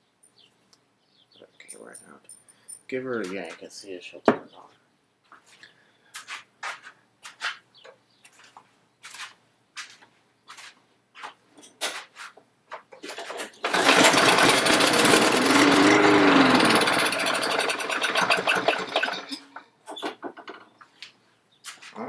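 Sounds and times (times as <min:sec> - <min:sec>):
lawn mower engine starting: 0:13.3 - 0:20.6.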